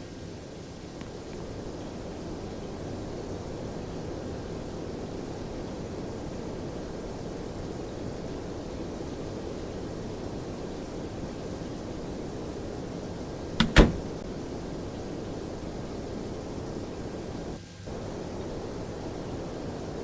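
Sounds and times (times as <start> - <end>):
sharp clicks: 13.6 - 14.2.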